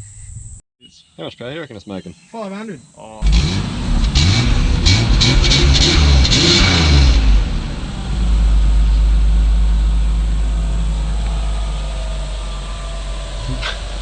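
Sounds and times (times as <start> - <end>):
car engine running: 3.2 - 14.0.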